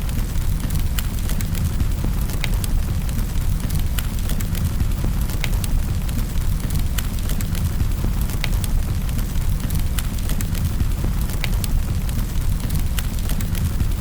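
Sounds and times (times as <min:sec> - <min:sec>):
fire crackles and pops: 0:00.0 - 0:14.0
low rumble of flames: 0:00.0 - 0:14.0.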